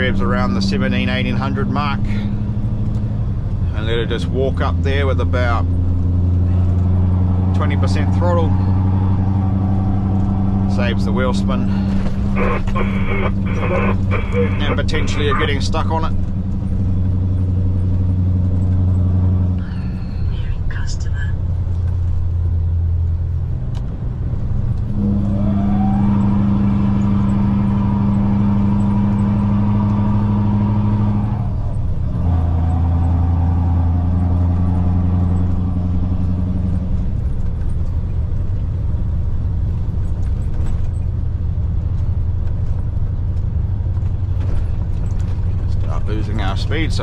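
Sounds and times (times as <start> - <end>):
diesel truck engine pulling uphill: 0.0 - 47.0
rising whine: 6.5 - 15.7.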